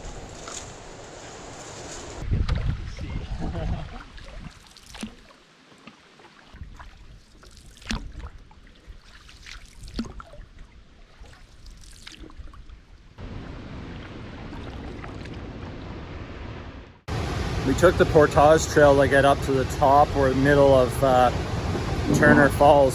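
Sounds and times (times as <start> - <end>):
water splashing and trickling: 0.0 - 15.8, 17.1 - 22.9
steady rushing water: 13.2 - 16.3, 17.0 - 22.9.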